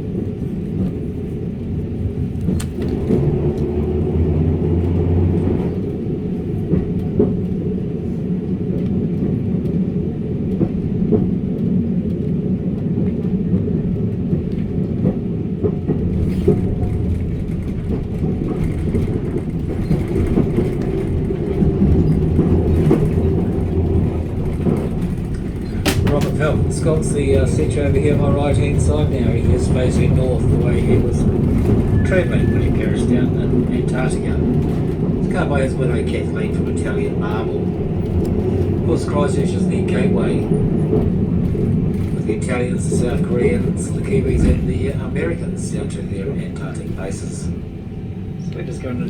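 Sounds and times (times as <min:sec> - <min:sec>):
tram rumbling: 0:00.0 - 0:49.0
clicks and knocks: 0:24.5 - 0:26.6.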